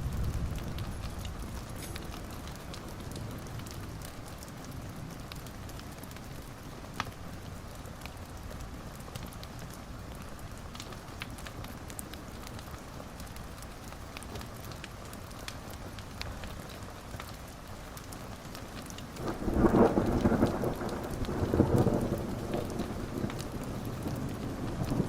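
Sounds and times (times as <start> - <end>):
thunder rumbling: 0.0 - 4.1, 19.2 - 25.0
steady rain: 0.0 - 25.0.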